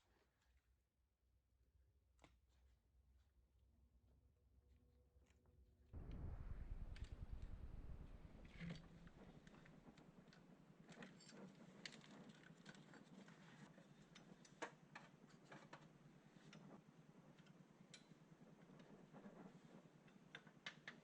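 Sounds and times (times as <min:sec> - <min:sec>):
low background hum: 0:06.0 - 0:11.3.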